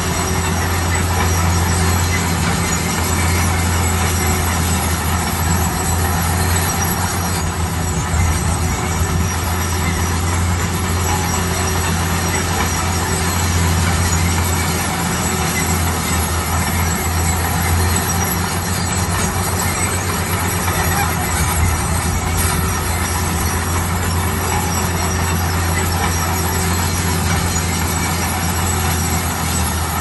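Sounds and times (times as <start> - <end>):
bulldozer diesel engine running: 0.0 - 30.0
machinery clatter: 0.0 - 30.0.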